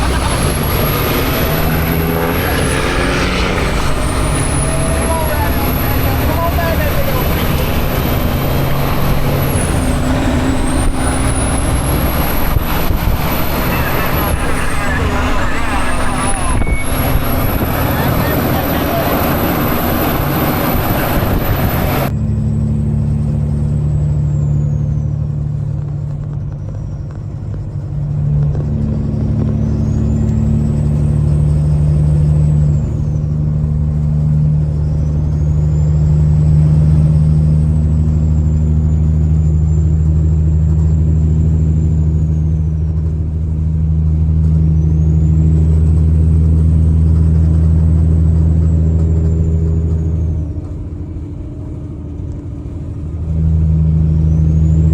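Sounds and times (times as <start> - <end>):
loud rushing noise: 0.0 - 22.1
diesel truck engine droning: 0.0 - 54.9
faint high whistle: 9.4 - 22.1.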